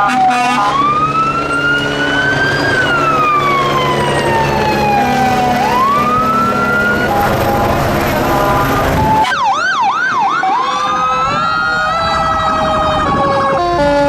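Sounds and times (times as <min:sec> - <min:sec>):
fire truck siren wailing: 0:00.0 - 0:14.0
low drone: 0:00.8 - 0:09.2.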